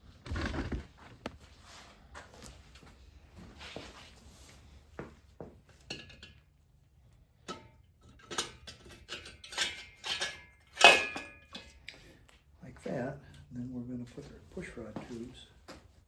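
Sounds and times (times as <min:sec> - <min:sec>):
metal parts and tools clinking: 0:07.4 - 0:11.8.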